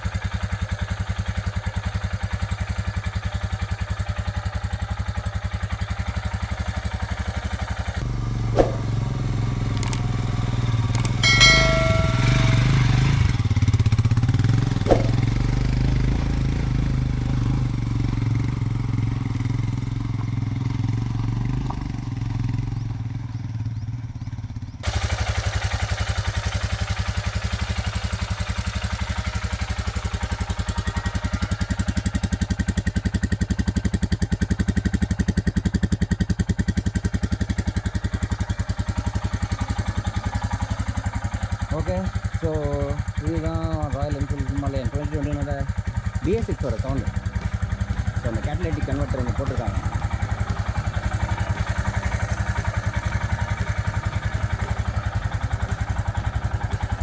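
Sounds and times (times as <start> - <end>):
motorcycle engine idling: 0.0 - 57.0
brief high-pitched tone: 11.0 - 13.3.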